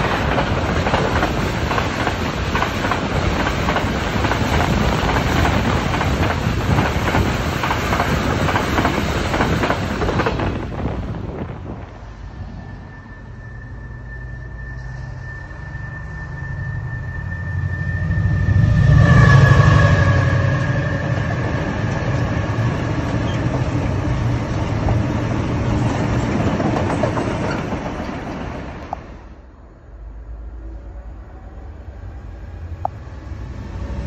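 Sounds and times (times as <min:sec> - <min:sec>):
train passing rumble: 0:00.0 - 0:34.0
high whine dropping in pitch: 0:11.3 - 0:22.8.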